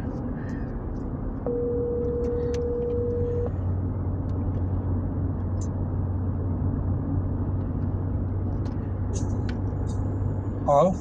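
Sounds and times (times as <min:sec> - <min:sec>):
car cabin road noise: 0:00.0 - 0:11.0
telephone ringback tone: 0:01.5 - 0:03.5.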